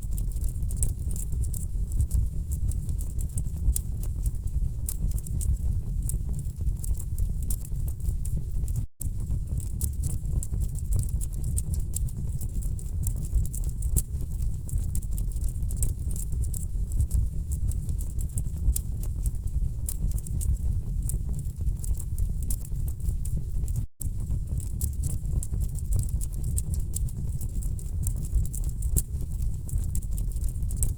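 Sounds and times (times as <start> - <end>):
low rumble of flames: 0.1 - 30.9.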